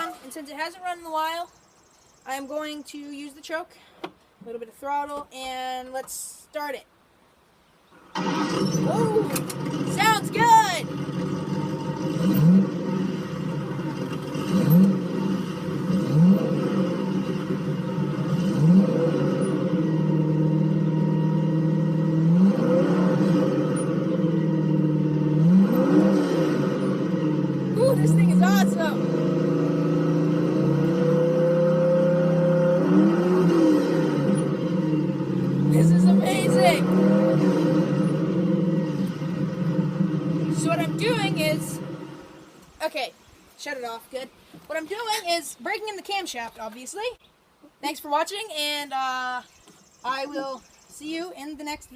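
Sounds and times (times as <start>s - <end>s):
engine revving: 7.9s - 42.7s
small engine running: 8.0s - 42.6s.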